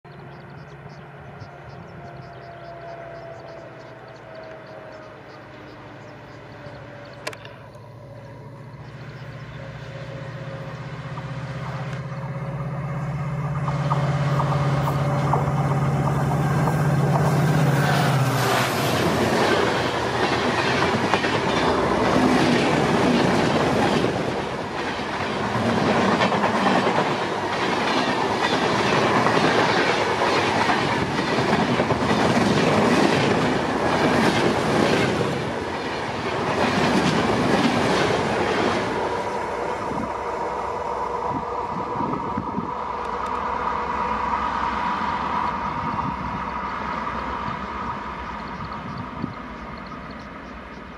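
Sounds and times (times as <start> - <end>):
train wheels clattering over rail joints: 18.4 - 38.8.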